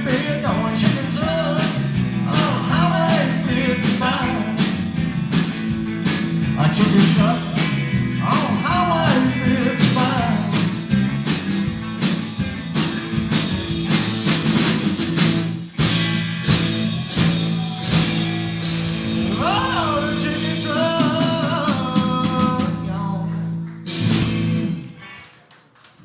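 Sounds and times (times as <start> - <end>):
live rock band: 0.0 - 25.4
drum hits: 0.1 - 22.8
electric guitar sliding notes: 15.8 - 21.4.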